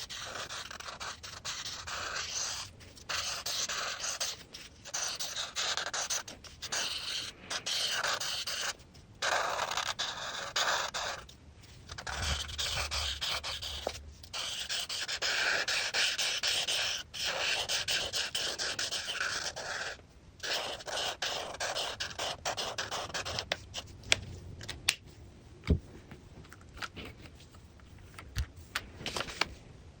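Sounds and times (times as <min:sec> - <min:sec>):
coloring tool scratching on paper: 0:00.0 - 0:23.9.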